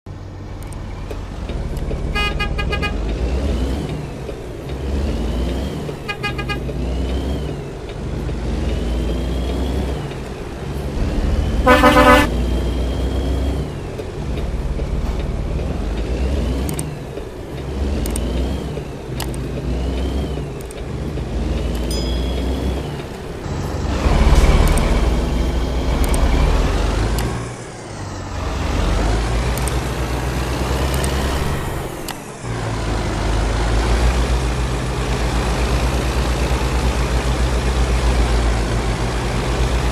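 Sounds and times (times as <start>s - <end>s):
highway road and engine rumble: 0.0s - 39.9s
loud horn blast: 2.1s - 3.0s, 11.6s - 12.4s
stuttering horn beeps: 2.1s - 3.0s, 6.0s - 6.7s, 11.5s - 12.4s.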